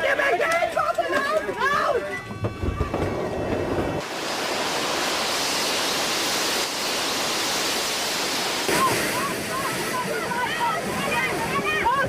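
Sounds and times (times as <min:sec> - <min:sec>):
low rumbling commotion: 0:02.1 - 0:04.0
steady rushing hiss: 0:04.0 - 0:12.0.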